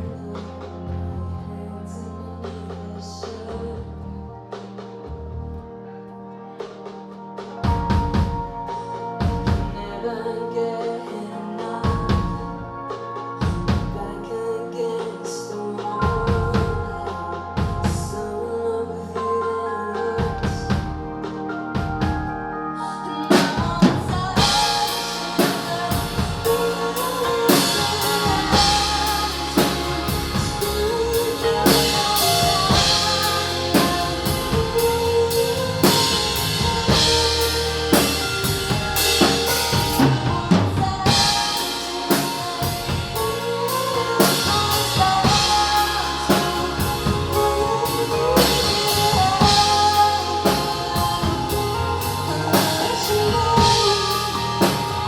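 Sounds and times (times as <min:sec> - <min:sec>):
drum kit beat: 0:06.6 - 0:10.0, 0:23.3 - 0:55.0
melodic line: 0:07.6 - 0:55.0.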